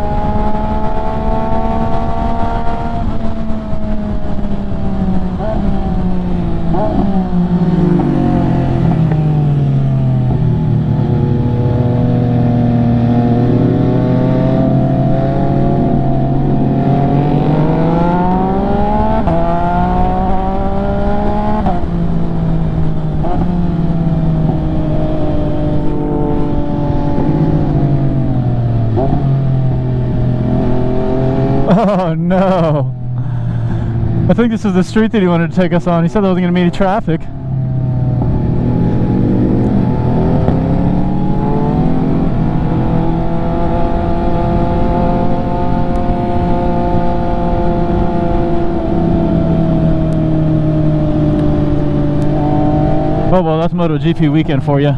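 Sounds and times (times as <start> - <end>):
wind noise: 0.0 - 36.2
motorcycle engine accelerating: 0.0 - 54.9.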